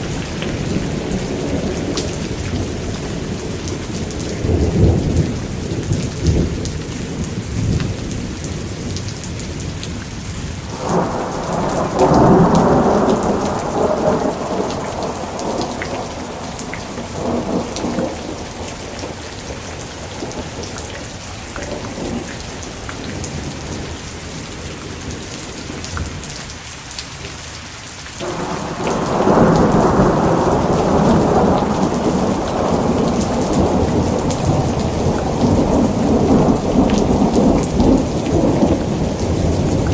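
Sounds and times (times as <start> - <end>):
steady rain: 0.0 - 39.9
rolling thunder: 10.7 - 24.0, 28.2 - 39.9.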